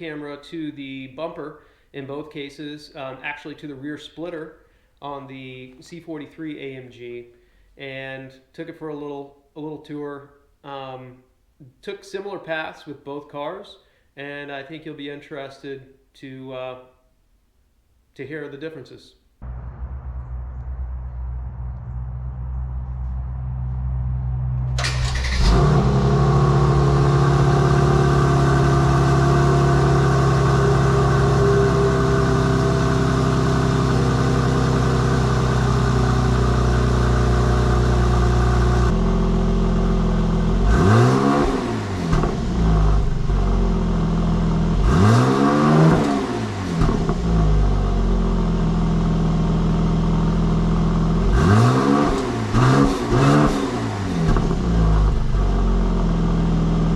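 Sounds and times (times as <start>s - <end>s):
car engine revving: 19.4s - 49.3s, 51.0s - 56.9s
car engine cold start and idle: 19.4s - 51.4s, 52.5s - 56.9s.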